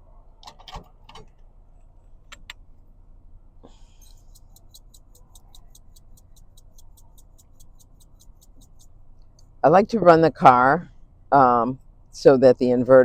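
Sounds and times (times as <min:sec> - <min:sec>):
car engine idling: 0:01.3 - 0:12.3
fast high ticking: 0:03.9 - 0:09.6.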